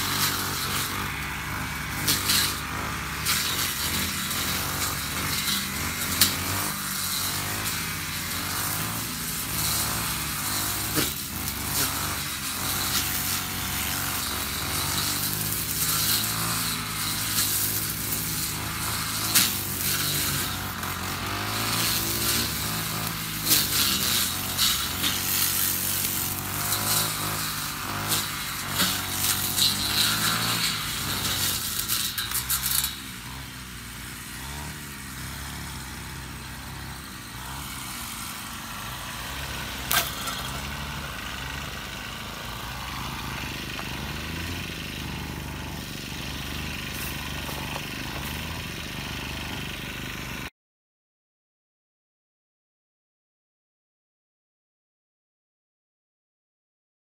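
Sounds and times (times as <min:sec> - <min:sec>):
grass stalks hitting blade: 0:00.0 - 0:33.5, 0:39.0 - 0:41.6, 0:42.5 - 0:48.6
brush cutter engine: 0:00.0 - 0:50.5.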